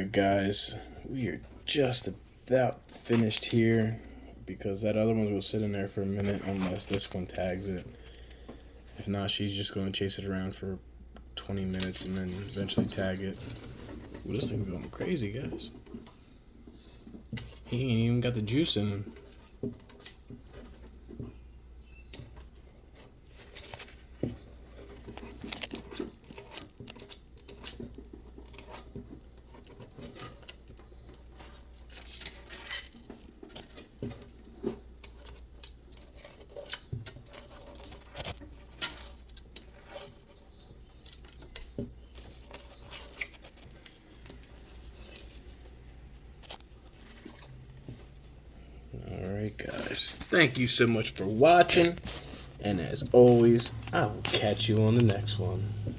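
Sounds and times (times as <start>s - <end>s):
mouse clicking and scratching: 22.0s - 47.5s
low steady hum: 47.0s - 55.9s.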